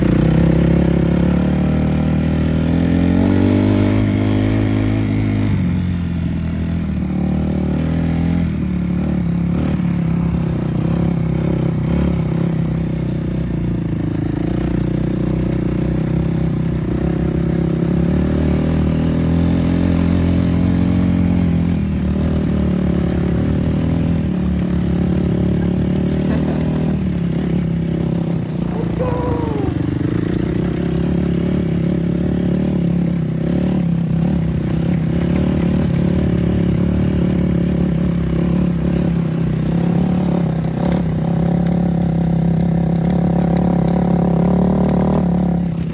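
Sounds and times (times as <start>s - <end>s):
dirt bike engine revving: 22.1s - 34.4s.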